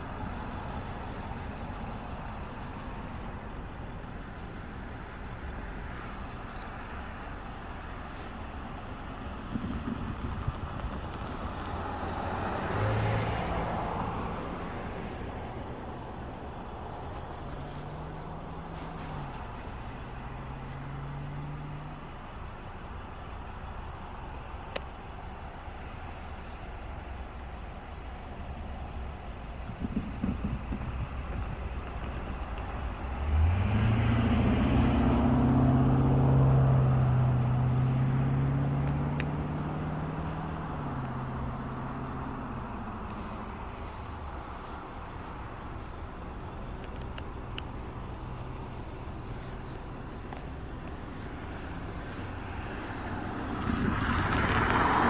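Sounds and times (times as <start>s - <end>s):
heavy engine drone: 0.0s - 12.2s, 14.1s - 55.0s
train rumble: 14.2s - 34.4s.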